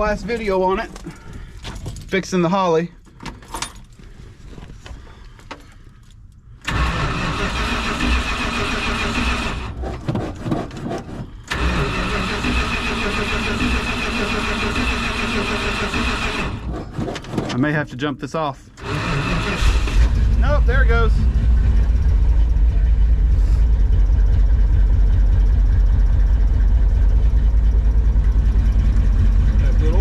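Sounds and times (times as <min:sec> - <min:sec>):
engine cranking by starter: 0:06.6 - 0:17.6, 0:18.7 - 0:30.0.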